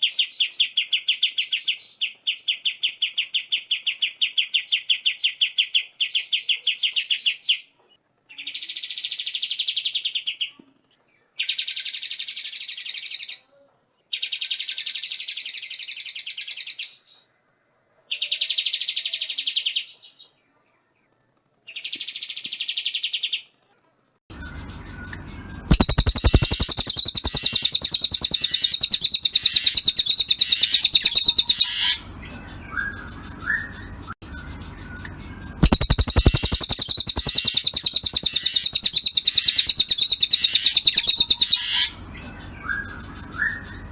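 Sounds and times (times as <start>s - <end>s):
harsh pulsed bird song: 24.3s - 43.9s
soft bird calls: 24.3s - 43.9s
songbird buzzy trills: 24.3s - 43.9s.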